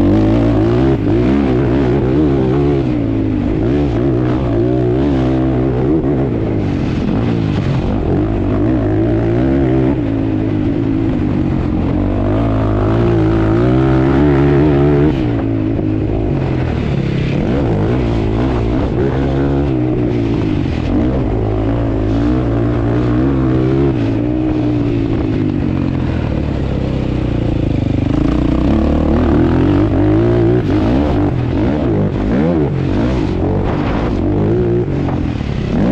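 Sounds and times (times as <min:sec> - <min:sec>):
quad bike engine revving: 0:00.0 - 0:35.9.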